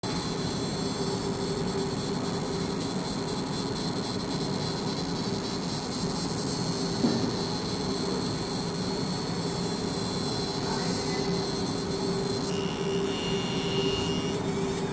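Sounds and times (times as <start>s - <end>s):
laser engraver buzzing hiss: 0.0s - 14.9s
brief loud pop: 7.0s - 7.3s.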